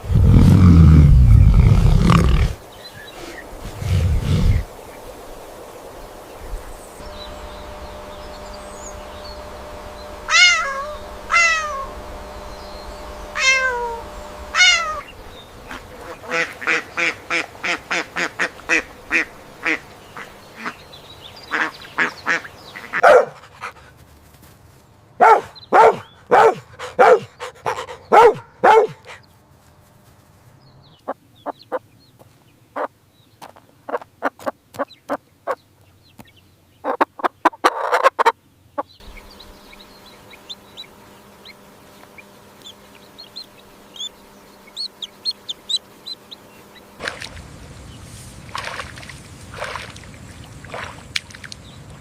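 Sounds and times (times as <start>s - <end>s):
duck quacking: 10.2s - 12.0s, 13.4s - 20.8s, 21.5s - 23.3s
loud short animal calls: 10.2s - 12.0s, 13.3s - 19.8s
cat meowing: 10.3s - 11.9s, 13.4s - 14.0s, 14.6s - 15.1s.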